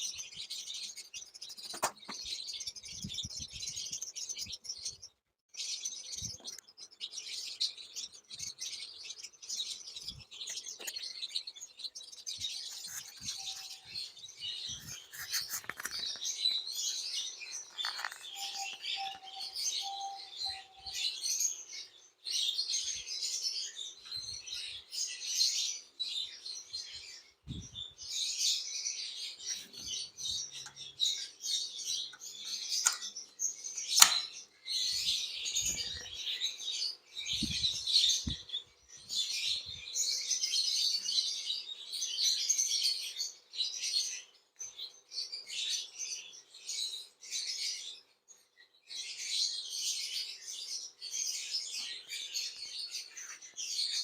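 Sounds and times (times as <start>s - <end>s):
small birds chirping: 0.0s - 54.0s
sharp click: 34.0s - 34.3s.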